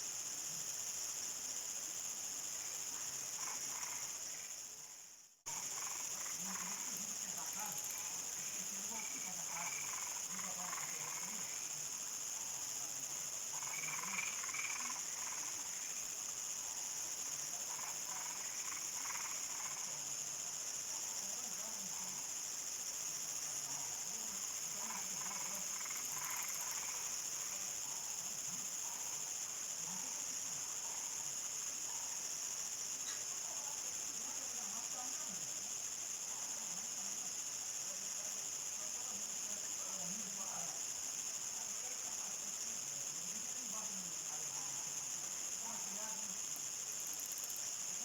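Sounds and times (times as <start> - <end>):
crickets trilling: 0.0 - 48.0
frogs calling: 3.4 - 4.4, 5.5 - 11.8, 13.4 - 16.0, 17.6 - 19.9, 24.6 - 29.2.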